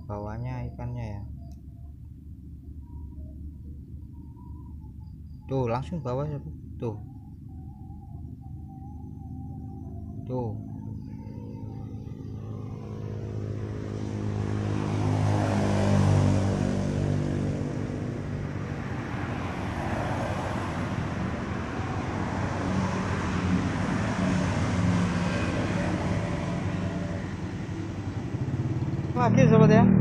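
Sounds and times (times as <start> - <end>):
vehicles passing by: 0.0 - 30.0.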